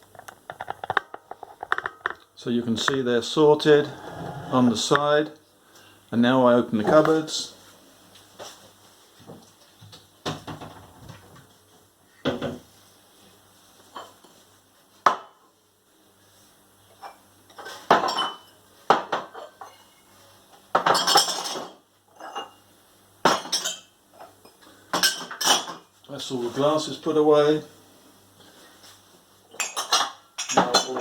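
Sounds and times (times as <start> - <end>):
glasses clattering: 3.7 - 4.9
glasses clinking on shelf: 29.6 - 31.0.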